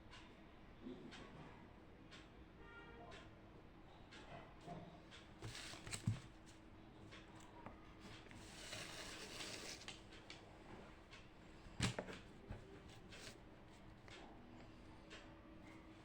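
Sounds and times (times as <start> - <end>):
soft rustle: 8.0 - 10.1.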